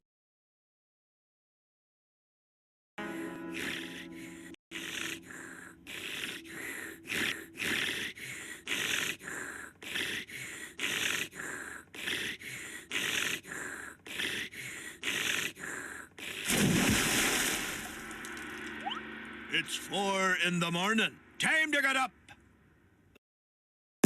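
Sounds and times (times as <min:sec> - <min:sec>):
rhythmic airy breaths: 0:03.0 - 0:16.5.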